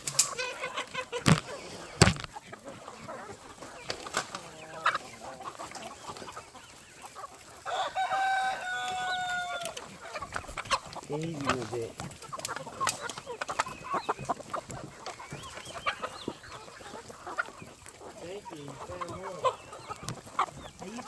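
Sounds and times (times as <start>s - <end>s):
chickens clucking: 0.0s - 21.0s
rooster crowing: 7.6s - 9.8s.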